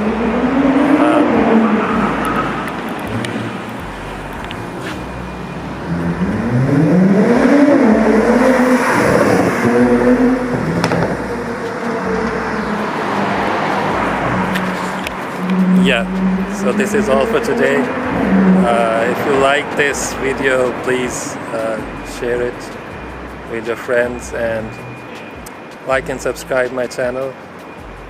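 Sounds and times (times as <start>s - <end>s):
car engine accelerating through gears: 0.0s - 21.2s.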